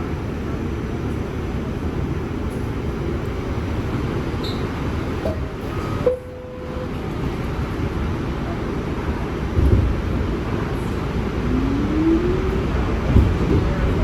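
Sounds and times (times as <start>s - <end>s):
subway car rumble and rattle: 0.0s - 14.0s
squeal-like tone: 11.4s - 13.1s.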